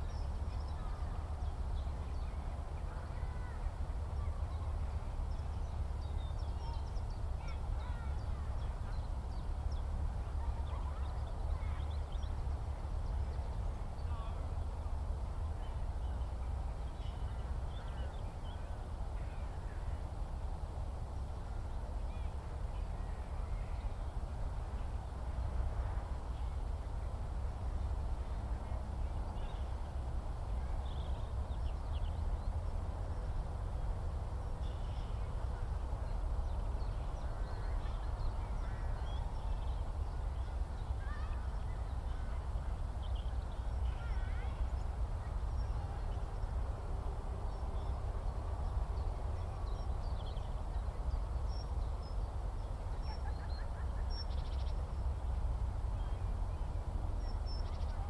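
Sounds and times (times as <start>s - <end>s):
steady low rumble: 0.0s - 58.0s
faint bird chirps: 48.7s - 55.3s, 57.2s - 58.0s.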